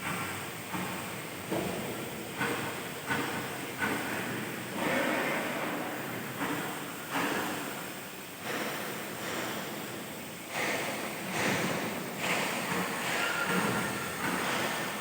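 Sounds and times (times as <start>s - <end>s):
metal cutting machine hissing: 12.2s - 15.0s.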